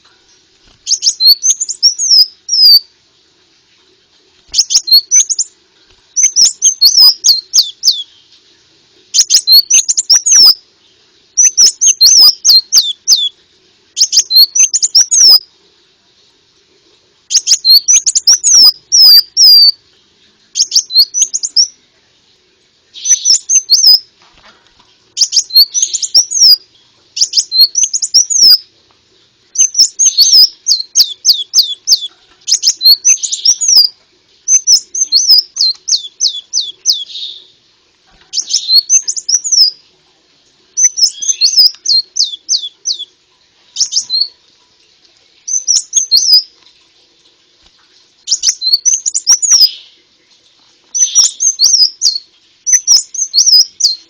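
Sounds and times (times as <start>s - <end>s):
bird chirping song: 0.0s - 2.9s, 4.5s - 8.5s, 9.1s - 13.4s, 14.0s - 15.5s, 17.3s - 19.9s, 20.5s - 21.8s, 22.9s - 24.1s, 25.1s - 28.7s, 29.5s - 39.8s, 40.8s - 44.4s, 45.4s - 46.5s, 48.3s - 50.0s, 50.9s - 54.0s.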